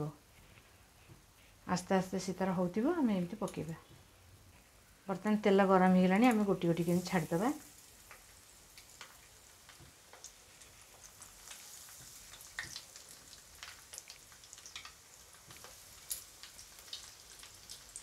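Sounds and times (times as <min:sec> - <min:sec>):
food frying in hot oil: 0:05.9 - 0:18.0.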